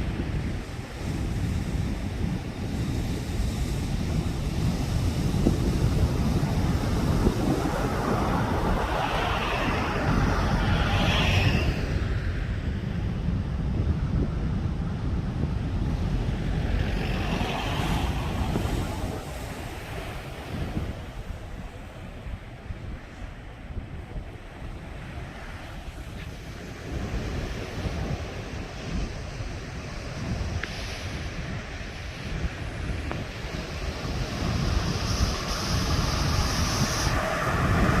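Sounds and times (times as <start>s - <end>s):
sea waves breaking on beach: 0.0s - 12.4s, 15.6s - 38.0s
wind buffeting microphone: 0.0s - 38.0s.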